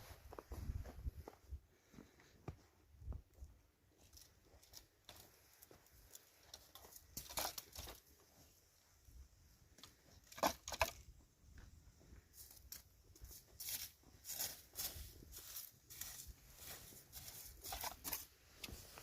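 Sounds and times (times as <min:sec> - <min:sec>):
crunching handling noises: 0:04.0 - 0:08.3, 0:12.2 - 0:19.0.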